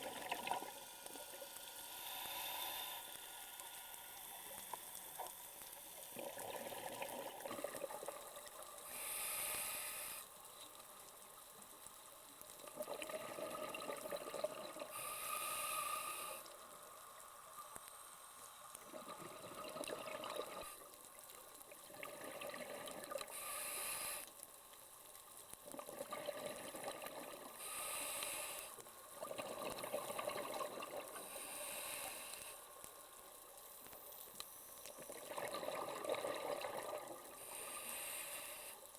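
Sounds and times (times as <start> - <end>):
exhaled bubbles: 0.0 - 0.9, 6.1 - 8.6, 12.6 - 15.0, 18.8 - 20.9, 21.7 - 23.4, 25.6 - 27.6, 29.2 - 31.8, 34.9 - 37.7
regulator hissing inhale: 1.8 - 4.9, 8.8 - 10.4, 14.8 - 16.7, 23.2 - 24.4, 27.5 - 29.0, 31.1 - 32.9, 37.4 - 38.9.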